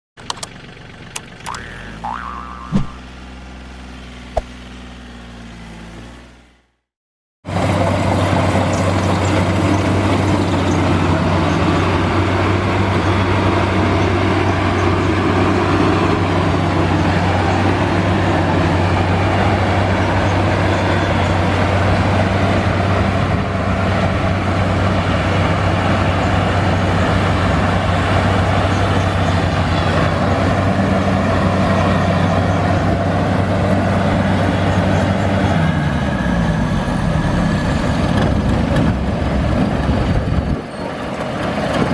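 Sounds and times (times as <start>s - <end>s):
combine harvester engine drone: 0.2s - 6.8s, 7.5s - 41.9s.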